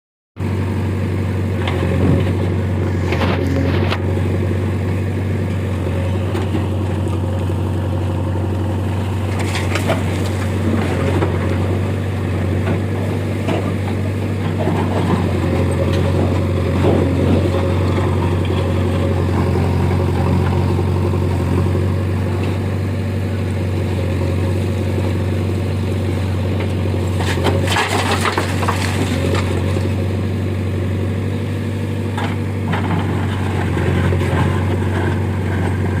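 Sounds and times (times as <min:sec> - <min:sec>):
diesel engine running: 0:00.4 - 0:36.0
harsh scraping and crunching: 0:01.6 - 0:22.8, 0:26.6 - 0:30.3.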